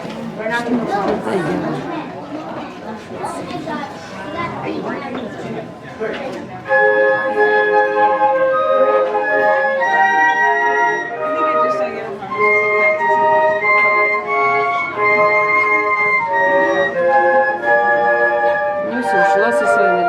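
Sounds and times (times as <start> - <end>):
flute ensemble playing: 6.6 - 20.0.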